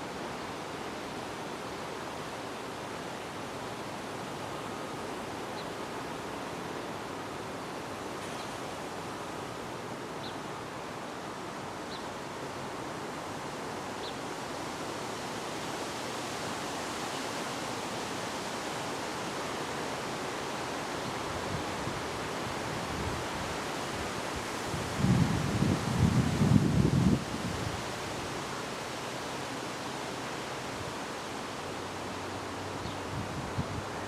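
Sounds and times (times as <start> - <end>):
wind blowing: 21.3 - 28.3.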